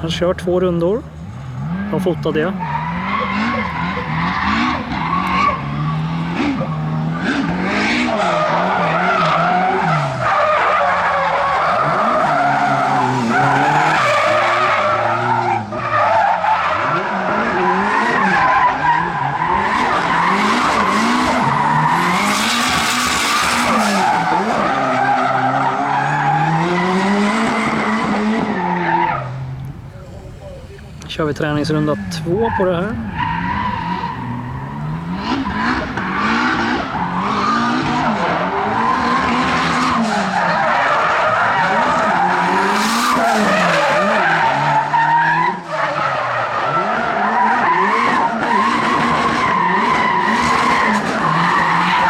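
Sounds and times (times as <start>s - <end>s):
car engine revving hard: 1.0s - 52.0s
tyres squealing: 1.3s - 14.0s, 28.6s - 46.2s.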